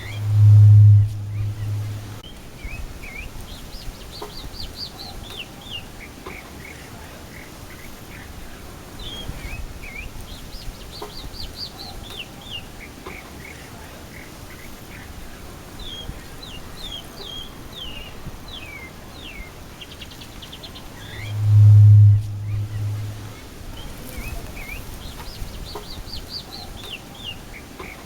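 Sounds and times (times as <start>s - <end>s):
mockingbird singing: 20.4s - 28.0s.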